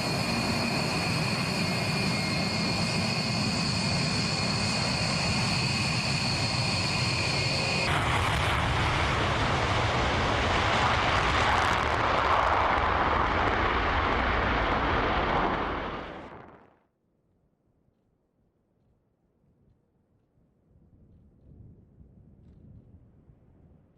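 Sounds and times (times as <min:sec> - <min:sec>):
rushing jet noise: 0:00.0 - 0:16.6
jet engine whine: 0:00.0 - 0:16.7.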